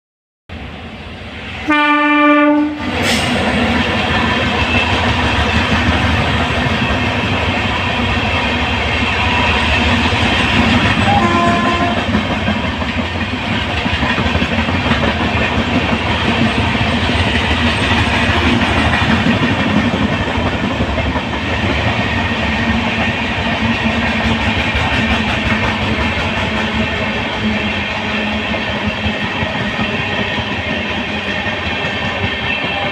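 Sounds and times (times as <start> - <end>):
locomotive horn blast: 1.6 - 2.9, 11.0 - 12.1
train wheels rumbling and clattering: 2.2 - 32.9.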